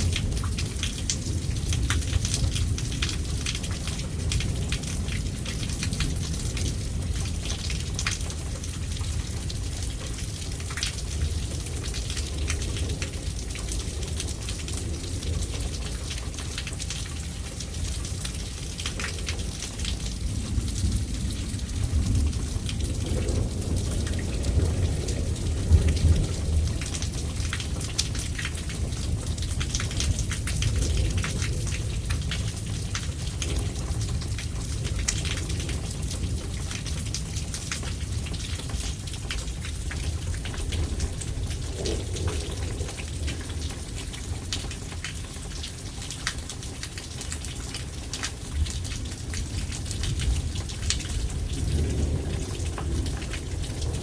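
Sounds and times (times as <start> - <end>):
close raindrops ticking: 0.0 - 54.0
low thunder rumble: 0.0 - 54.0
rain falling: 0.0 - 54.0.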